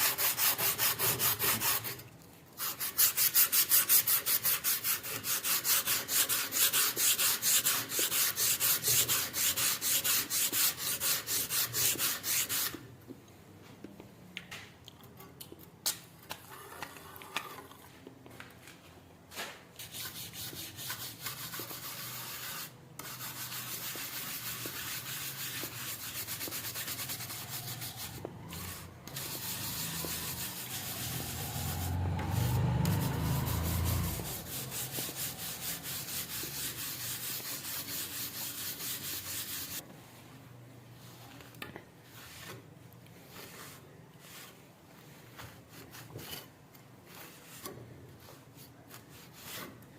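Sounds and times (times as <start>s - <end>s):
hand sanding metal blade: 0.0s - 2.0s, 2.6s - 12.8s, 19.8s - 39.8s.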